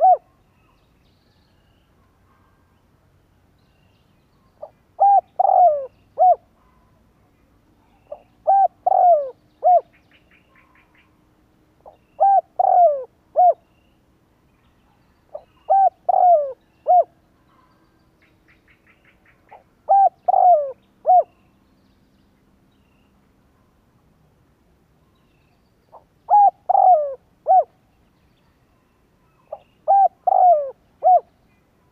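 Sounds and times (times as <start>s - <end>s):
dove cooing: 0.0s - 0.4s, 4.6s - 6.5s, 8.1s - 9.9s, 11.8s - 13.6s, 15.3s - 17.1s, 19.5s - 21.3s, 25.9s - 27.8s, 29.5s - 31.3s.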